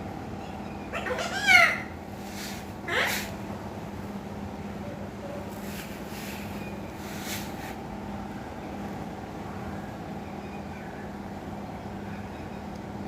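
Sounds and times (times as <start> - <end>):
constant hum: 0.0 - 13.0
soft rustles: 5.5 - 7.8.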